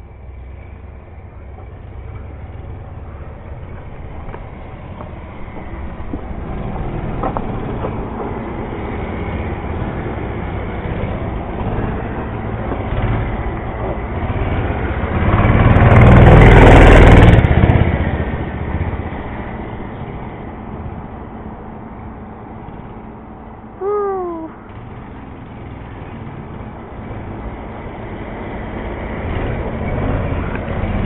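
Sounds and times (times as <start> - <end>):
mini bike engine running: 0.7 - 21.0.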